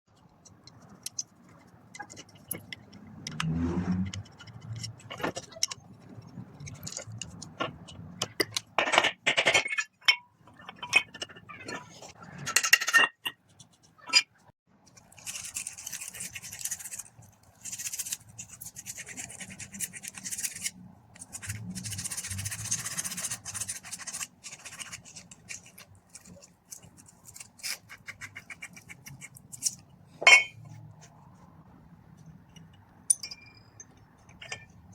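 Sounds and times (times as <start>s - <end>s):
metal tools clinking: 29.6s - 30.6s, 32.6s - 34.8s.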